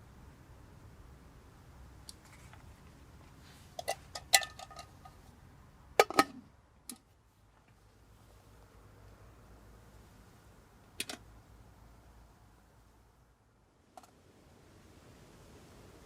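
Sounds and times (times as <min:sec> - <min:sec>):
metal cookware clinking: 0:03.8 - 0:05.1.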